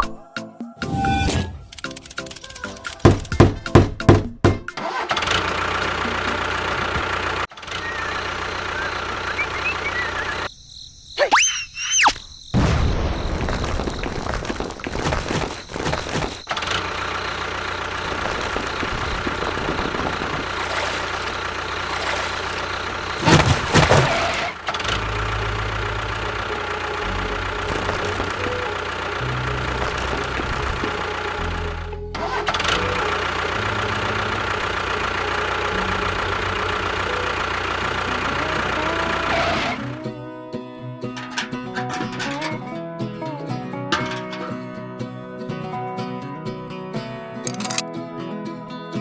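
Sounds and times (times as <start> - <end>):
motor humming: 5.2 - 10.5, 16.5 - 39.7.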